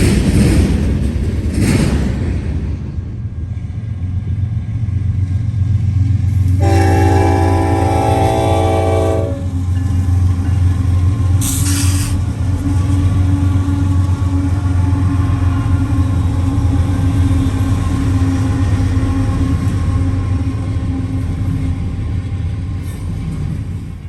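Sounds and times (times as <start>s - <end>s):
train horn chord: 6.3s - 10.3s
short high hiss: 11.4s - 12.2s.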